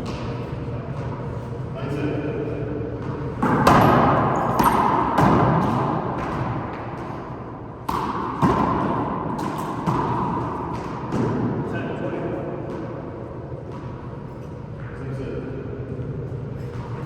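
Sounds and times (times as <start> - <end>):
handball smacking off walls: 3.0 - 7.2, 7.8 - 11.5.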